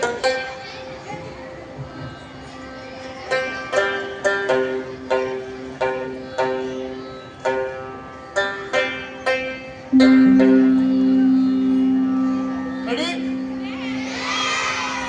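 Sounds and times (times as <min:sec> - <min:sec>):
plucked banjo-like melody: 0:03.3 - 0:15.0.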